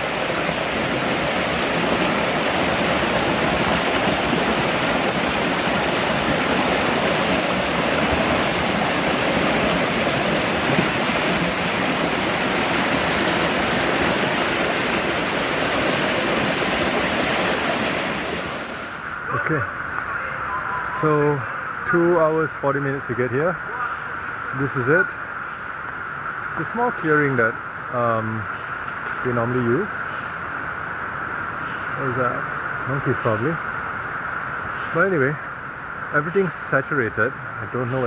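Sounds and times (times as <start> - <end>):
river rushing: 0.0 - 19.2.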